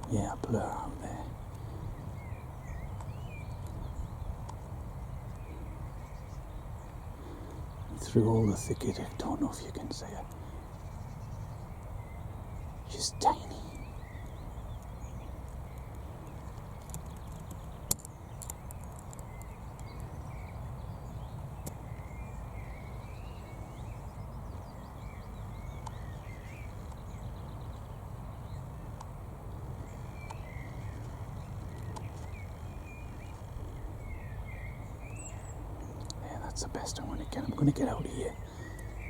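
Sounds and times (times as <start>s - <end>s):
small birds singing: 0.0s - 39.0s
steady low rumble: 19.3s - 39.0s.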